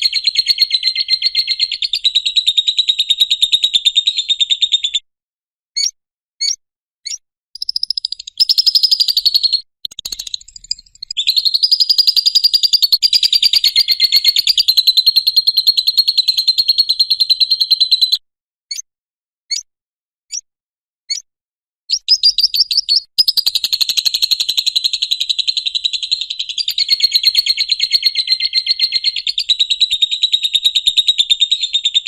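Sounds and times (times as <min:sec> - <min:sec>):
bird chattering trill: 0:00.0 - 0:05.0, 0:07.6 - 0:18.8, 0:21.9 - 0:32.0
bird chips: 0:07.6 - 0:14.8, 0:21.9 - 0:24.4.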